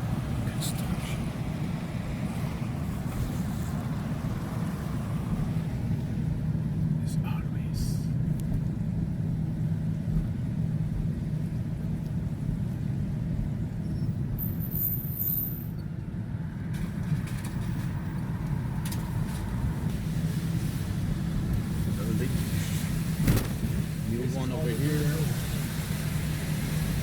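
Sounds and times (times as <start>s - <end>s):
car engine hum and road noise: 0.0s - 27.0s.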